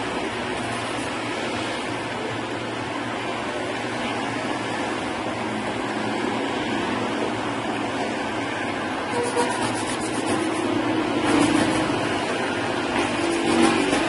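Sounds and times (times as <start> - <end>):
rushing air: 0.0 - 14.0.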